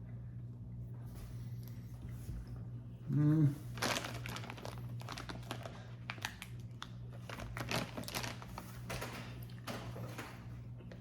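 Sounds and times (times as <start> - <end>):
steady low hum: 0.0 - 11.0
plastic pouch crinkling: 3.7 - 8.9.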